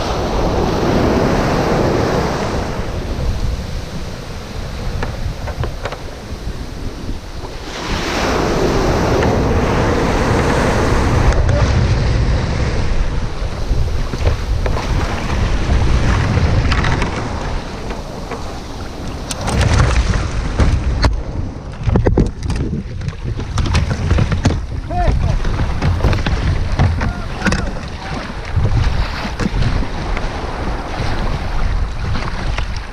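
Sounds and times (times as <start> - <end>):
sea surf breaking: 0.0 - 32.9
wind buffeting microphone: 0.0 - 32.9
sharp knocks: 23.4 - 27.9.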